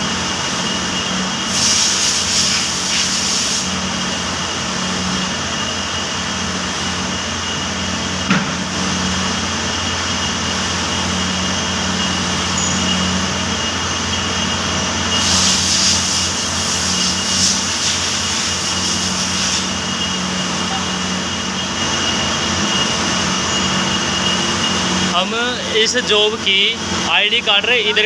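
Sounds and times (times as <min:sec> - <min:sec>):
machine humming with high whine: 0:00.0 - 0:28.0
hiss: 0:01.4 - 0:03.8, 0:15.2 - 0:20.0.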